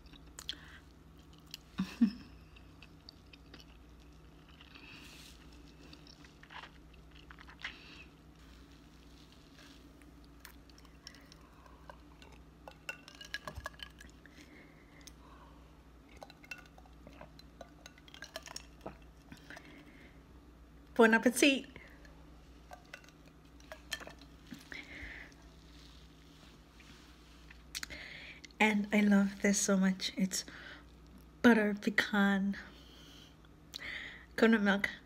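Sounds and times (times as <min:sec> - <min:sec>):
person chewing soft food: 0:00.0 - 0:15.2
person sipping: 0:02.4 - 0:15.5, 0:22.0 - 0:28.6.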